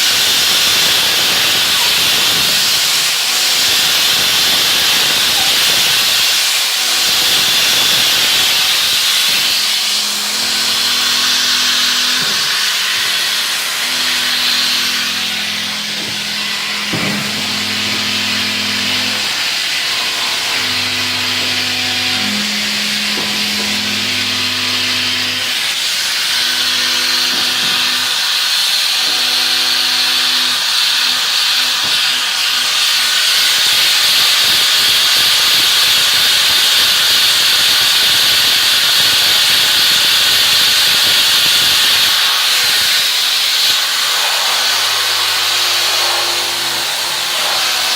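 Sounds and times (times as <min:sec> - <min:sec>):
low motor hum: 0:06.8 - 0:25.6.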